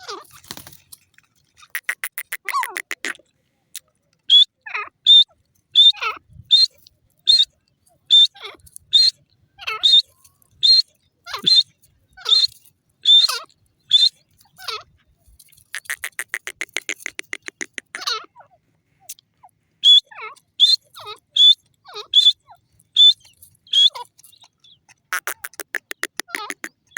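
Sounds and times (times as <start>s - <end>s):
bird rattling chatter: 0.0s - 3.1s, 12.2s - 18.1s
bird sharp high calls: 4.3s - 14.8s, 19.8s - 26.9s.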